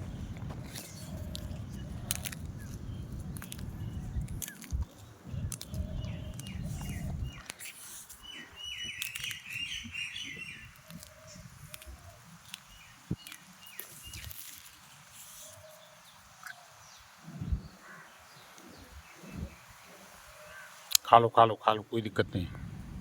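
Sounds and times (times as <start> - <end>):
low rumbling noise: 0.0 - 7.4, 22.2 - 23.0
small bird chirping: 0.0 - 20.8.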